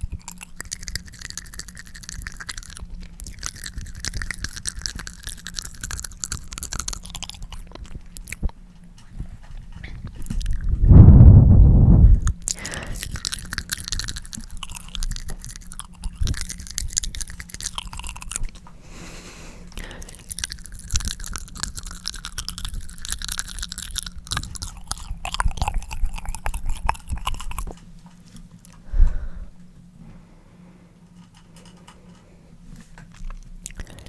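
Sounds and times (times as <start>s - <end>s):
wet sticky mouth sounds: 0.0s - 8.6s, 9.3s - 11.0s, 12.2s - 18.7s, 19.7s - 27.8s, 33.1s - 34.0s.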